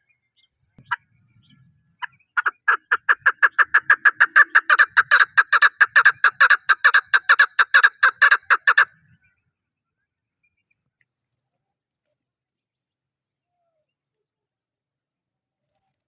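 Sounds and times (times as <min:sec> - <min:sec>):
partridge calling: 0:02.0 - 0:08.9.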